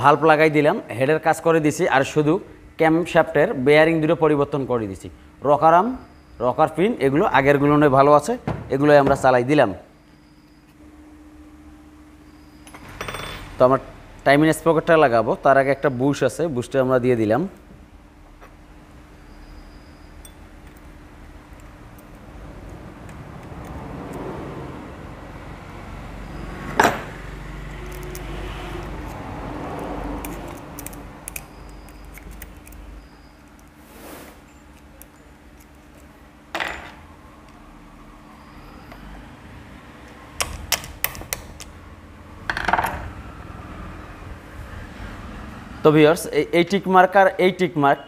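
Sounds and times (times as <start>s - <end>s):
faint steady hum: 0.0s - 44.8s
metal parts and tools clinking: 30.2s - 33.8s, 34.4s - 37.0s.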